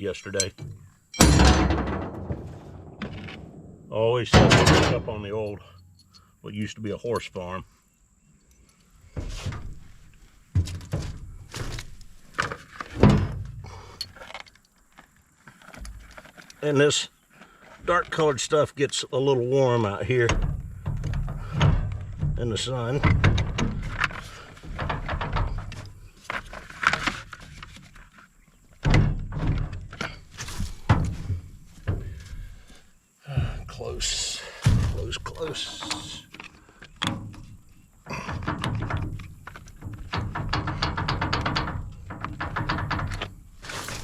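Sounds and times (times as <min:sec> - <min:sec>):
metal tools thunking and knocking: 0:00.2 - 0:03.7, 0:04.3 - 0:06.2, 0:08.5 - 0:14.5, 0:20.2 - 0:28.0, 0:28.7 - 0:32.5, 0:34.6 - 0:44.0.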